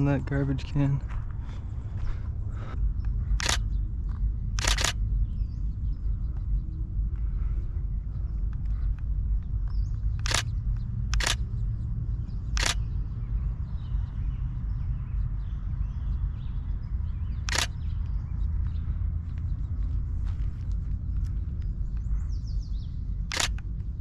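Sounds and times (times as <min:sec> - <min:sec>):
steady low rumble: 0:00.0 - 0:24.0
camera shutter clicks: 0:03.4 - 0:03.7, 0:04.6 - 0:05.0, 0:10.2 - 0:10.5, 0:11.1 - 0:11.4, 0:12.5 - 0:12.8, 0:17.4 - 0:17.8, 0:23.3 - 0:23.7.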